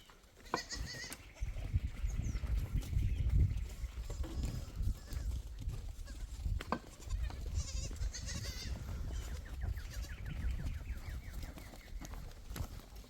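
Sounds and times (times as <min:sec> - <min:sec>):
goats bleating: 0:00.4 - 0:01.2, 0:04.0 - 0:10.2.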